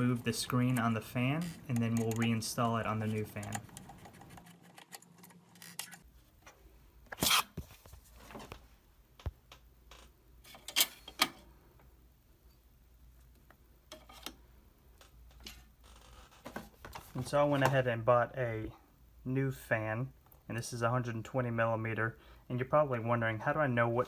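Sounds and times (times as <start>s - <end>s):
plastic and metal clicks: 1.7s - 2.4s.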